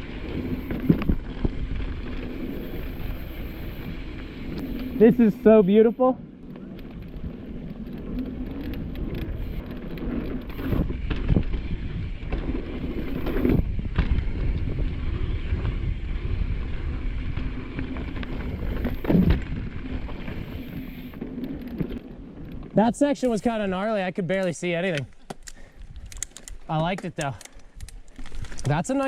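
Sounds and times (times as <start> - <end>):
bike jolting over bumps: 0.0 - 23.7, 27.6 - 29.0
bike tyres rumbling over dirt: 0.0 - 24.0, 28.0 - 29.0
wind on microphone: 8.6 - 21.1.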